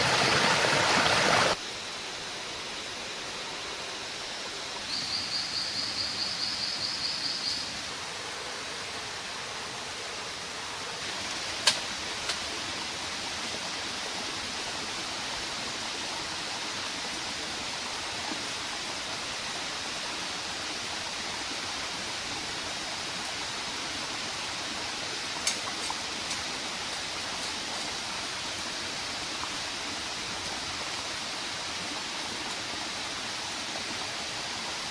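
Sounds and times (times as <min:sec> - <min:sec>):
stream flowing: 0:00.0 - 0:34.9.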